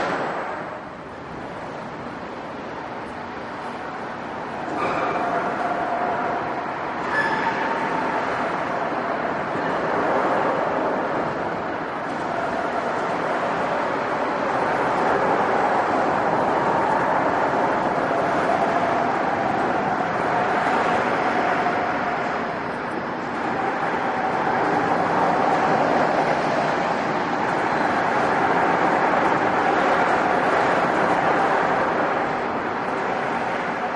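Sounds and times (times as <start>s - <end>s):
train wheels rushing on rail: 0.0s - 33.9s
faint wheel squeal: 4.7s - 6.4s, 7.0s - 8.5s.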